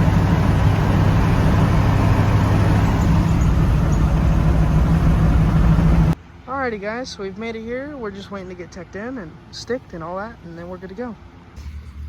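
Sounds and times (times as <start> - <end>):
low hum: 0.0 - 6.2, 11.5 - 12.0
vehicle engine and road noise: 0.0 - 12.0.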